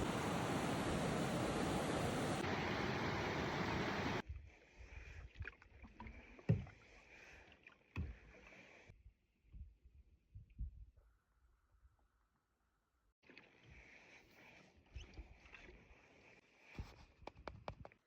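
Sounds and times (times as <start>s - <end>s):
rushing water: 0.0s - 4.2s.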